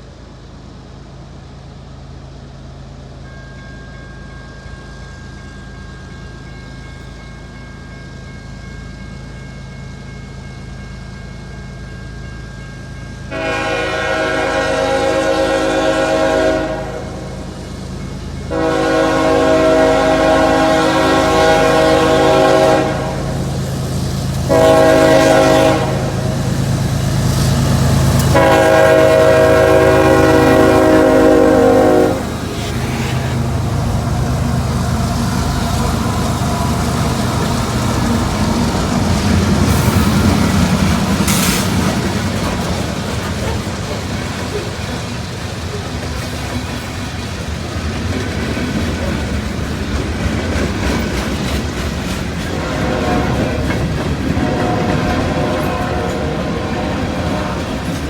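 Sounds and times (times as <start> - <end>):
train rumbling by: 0.0 - 58.0
locomotive horn: 13.3 - 17.5, 18.5 - 23.7, 24.3 - 40.5, 52.4 - 58.0.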